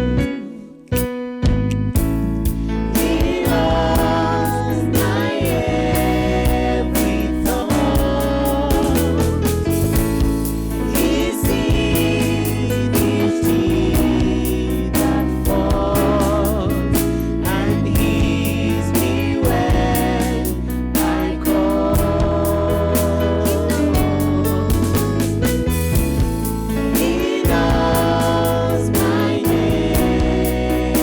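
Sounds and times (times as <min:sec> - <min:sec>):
keyboard and bass accompaniment: 0:00.0 - 0:31.0
voices singing gospel: 0:02.0 - 0:31.0.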